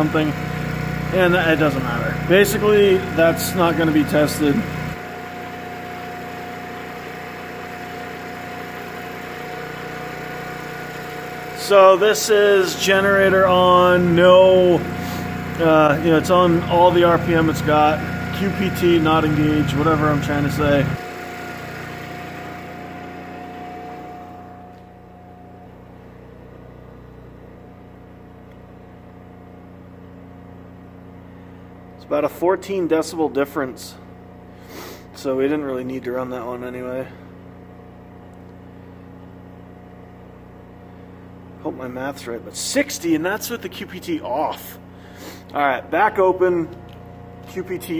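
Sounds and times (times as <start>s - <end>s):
generator engine hum with whine: 0.0s - 47.9s.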